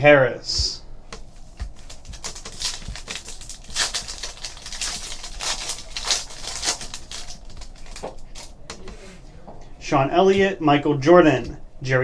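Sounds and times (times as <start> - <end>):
trading cards crinkling and clicking: 0.6 - 9.8.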